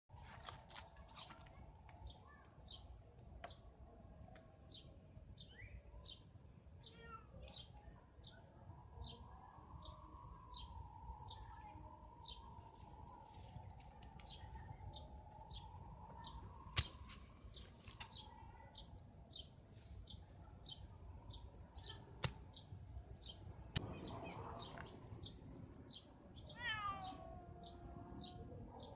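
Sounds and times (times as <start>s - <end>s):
cat yowling: 26.5s - 28.4s.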